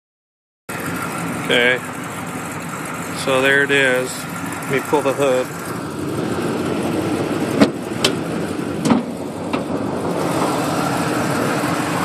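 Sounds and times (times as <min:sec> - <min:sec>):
car engine idling: 0:00.7 - 0:12.0
hood latch clicks and clunks: 0:07.6 - 0:08.2, 0:08.8 - 0:09.8.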